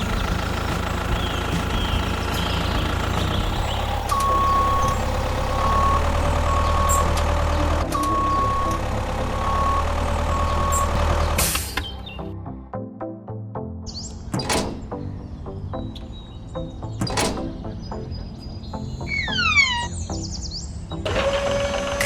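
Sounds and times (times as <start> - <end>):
truck engine running: 0.0 - 12.1, 14.2 - 20.1
reversing alarm beeping: 4.1 - 7.2, 7.9 - 8.8, 9.4 - 11.0.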